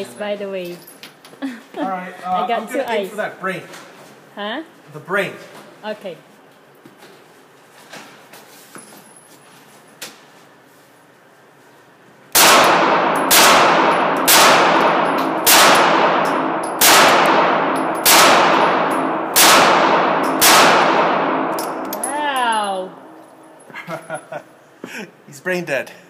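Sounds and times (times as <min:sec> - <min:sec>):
handgun shots with echo: 0:12.4 - 0:22.0.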